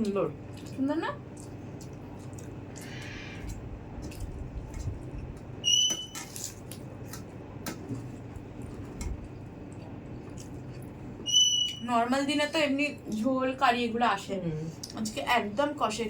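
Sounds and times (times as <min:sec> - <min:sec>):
chewing: 0:00.0 - 0:05.5, 0:06.1 - 0:11.0
short high squeak: 0:11.3 - 0:11.9.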